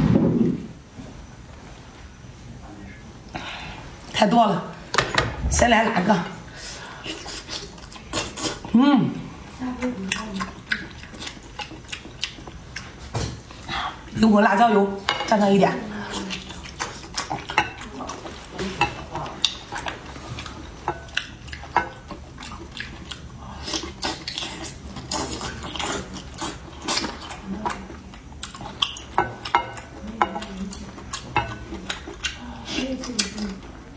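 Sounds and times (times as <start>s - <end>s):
utensils clinking against dishes: 28.6s - 33.6s.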